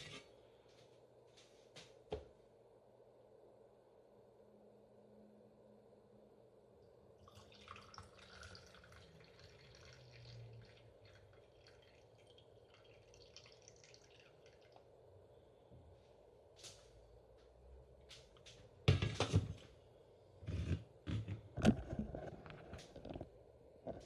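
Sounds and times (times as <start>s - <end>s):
faint liquid dripping and trickling: 7.2s - 15.2s.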